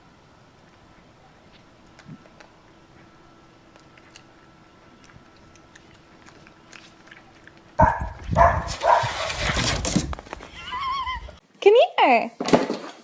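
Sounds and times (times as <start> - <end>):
animals scuffling and crying: 1.5 - 11.4.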